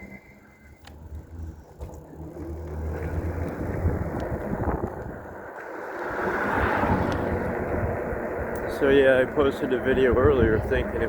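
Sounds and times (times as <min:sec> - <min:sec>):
wind rushing over microphone: 0:03.1 - 0:11.0.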